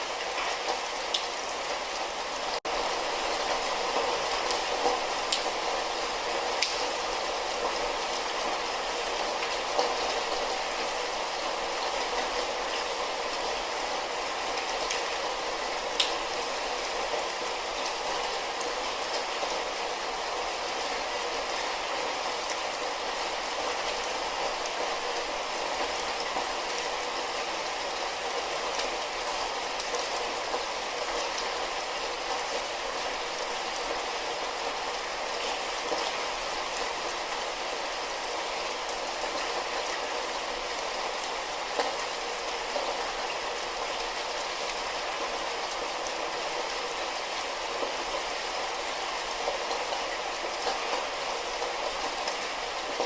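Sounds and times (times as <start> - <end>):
light rain falling: 0.0 - 53.0.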